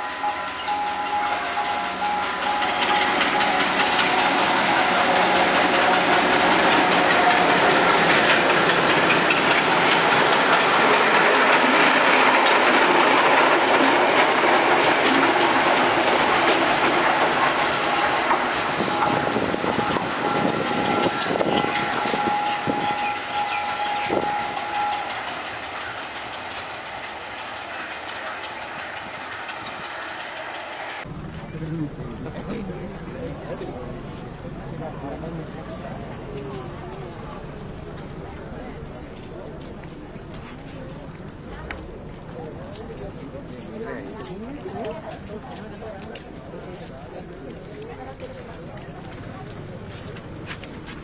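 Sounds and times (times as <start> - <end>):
diesel locomotive engines: 0.0 - 51.0
train wheel noise: 0.0 - 51.0
wheels clacking over rail joints: 0.6 - 31.1.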